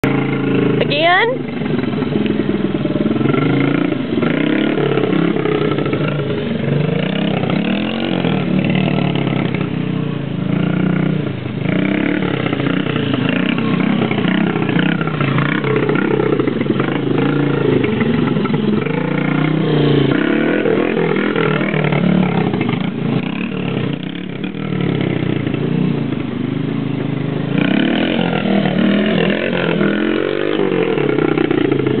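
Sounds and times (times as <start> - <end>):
small motorbike engine revving: 0.0 - 32.0.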